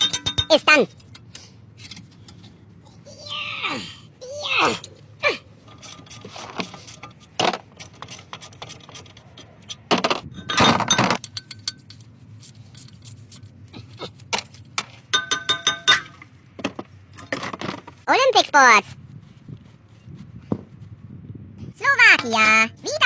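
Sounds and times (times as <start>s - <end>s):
metal tools clinking and knocking: 0.0s - 2.6s, 5.6s - 12.1s, 14.2s - 17.9s.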